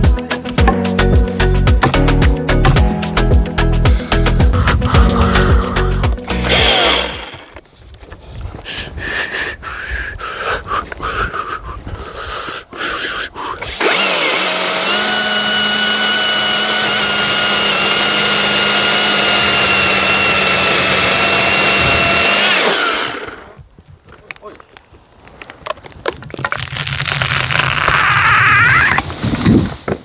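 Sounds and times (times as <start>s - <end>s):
chainsaw whining: 4.1s - 7.6s, 13.6s - 23.6s.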